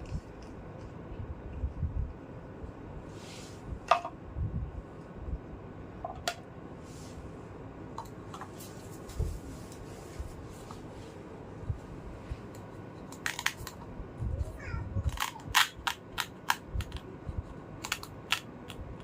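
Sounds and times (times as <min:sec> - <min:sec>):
soft rustling: 0:08.5 - 0:12.5
plastic toy pieces clicking: 0:13.1 - 0:13.8, 0:15.0 - 0:17.0, 0:17.8 - 0:18.8.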